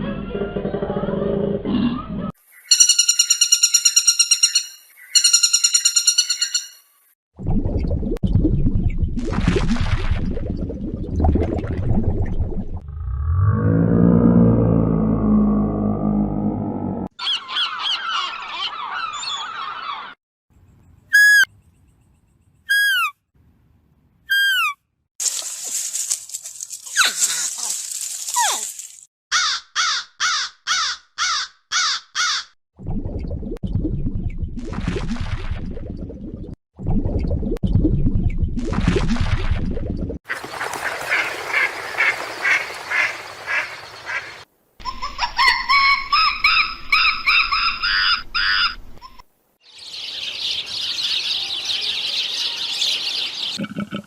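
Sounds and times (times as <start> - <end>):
whistled animal calls: 21.1 - 21.5, 22.6 - 23.2, 24.3 - 24.8.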